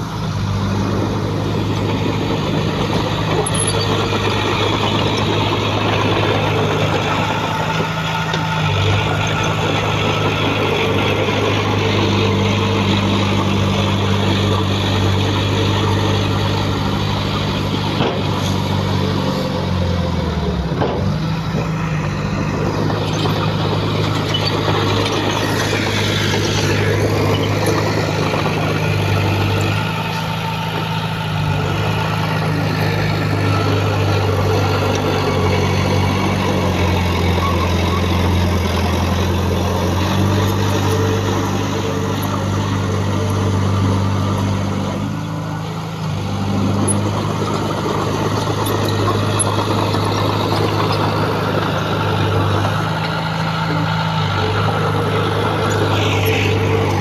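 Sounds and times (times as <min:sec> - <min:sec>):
diesel engine working under load: 0:00.0 - 0:57.0.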